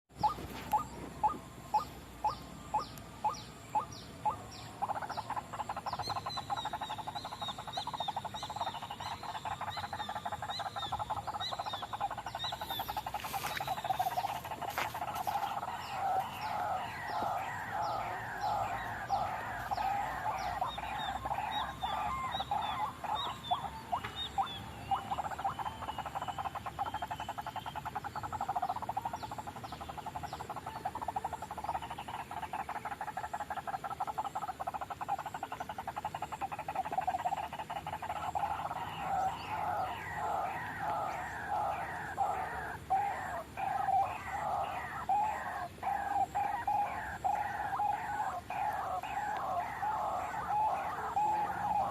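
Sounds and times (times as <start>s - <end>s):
waterhen calling: 0.1s - 51.9s
higher sweeping bird notes: 0.2s - 26.7s.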